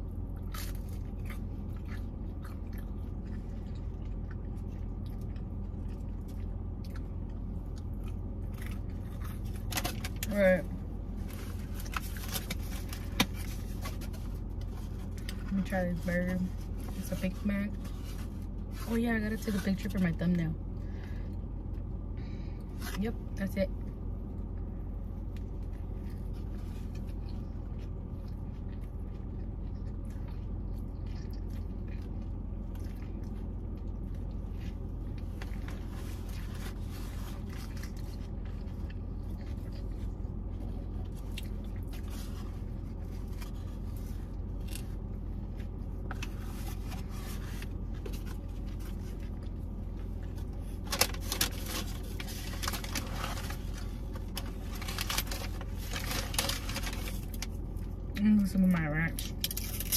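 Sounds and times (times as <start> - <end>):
biting and chewing: 0.0 - 15.7, 24.3 - 58.1
steady low hum: 0.0 - 59.9
paper wrapper crinkling: 11.1 - 20.0, 46.0 - 58.0, 59.2 - 59.9.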